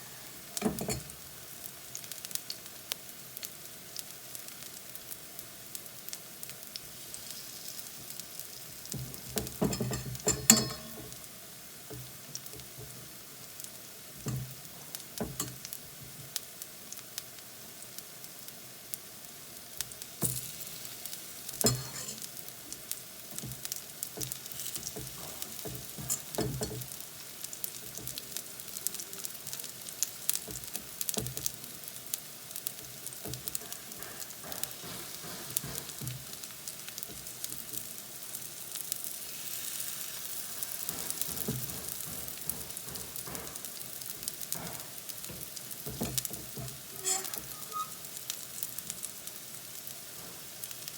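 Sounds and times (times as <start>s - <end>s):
food sizzling in hot oil: 0.0s - 50.9s
knocks in pan: 8.9s - 11.2s, 21.6s - 22.2s, 24.2s - 26.9s, 33.2s - 36.3s, 40.9s - 47.6s.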